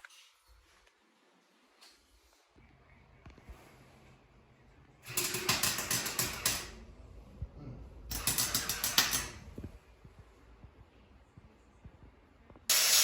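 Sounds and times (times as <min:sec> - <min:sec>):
welding arc crackling: 0:08.1 - 0:09.5, 0:12.7 - 0:13.0.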